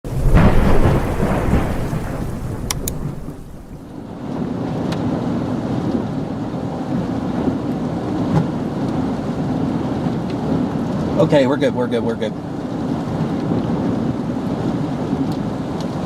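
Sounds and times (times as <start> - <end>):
thunder rumbling: 0.0 - 7.8
steady rain: 0.0 - 16.0
wind: 0.0 - 16.0.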